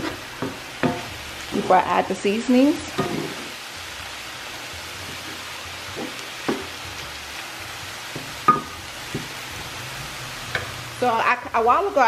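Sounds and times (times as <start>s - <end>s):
food sizzling in a skillet: 0.0s - 12.0s
spoon knocking against pan: 0.4s - 1.1s, 2.9s - 3.4s, 6.0s - 6.7s, 8.1s - 9.4s.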